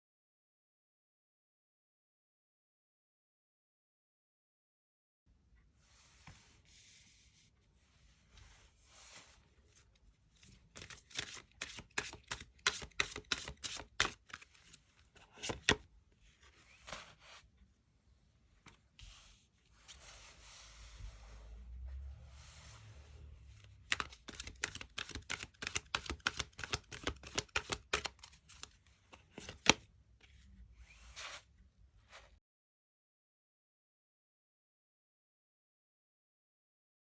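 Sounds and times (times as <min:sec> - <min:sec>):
cards rustling and sliding: 0:10.4 - 0:17.5, 0:23.6 - 0:31.5
quick sharp card snaps: 0:23.9 - 0:28.7.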